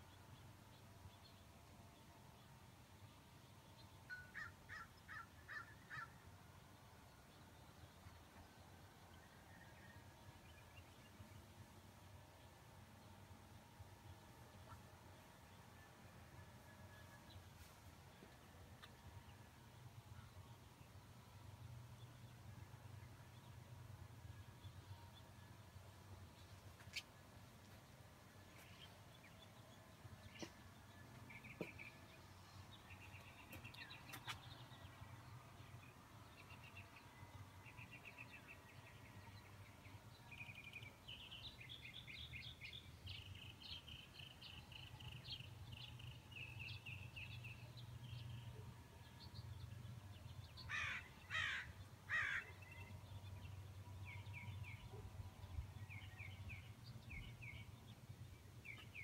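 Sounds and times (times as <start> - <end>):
loud bird calls: 50.7 - 52.6.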